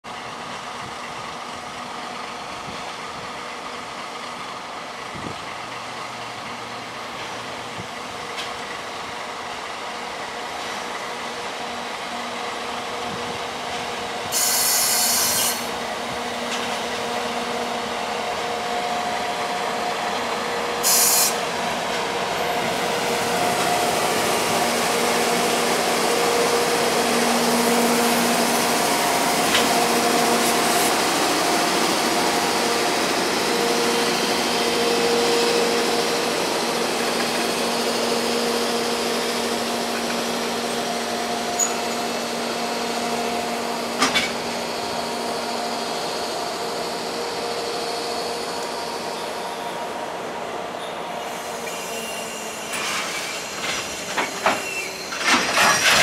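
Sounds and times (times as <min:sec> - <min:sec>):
freight train rumbling past: 0:00.1 - 0:56.0
short bursts of high hiss: 0:14.3 - 0:15.7, 0:20.8 - 0:21.4.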